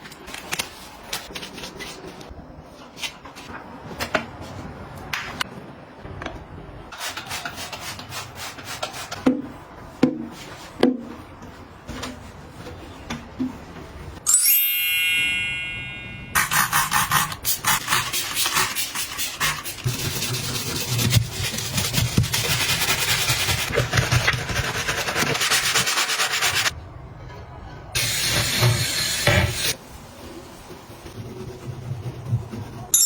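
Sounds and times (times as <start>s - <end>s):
fast scrubbing of a surface: 17.8s - 26.7s.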